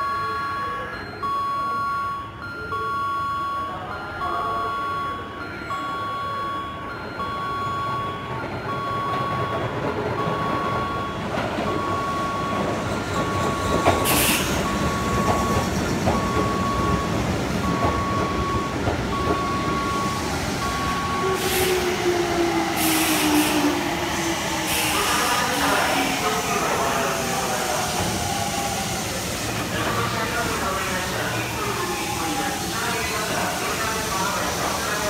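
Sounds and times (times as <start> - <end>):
platform warning chime beeping: 0.0 - 29.0
train wheels rumbling: 7.8 - 35.0.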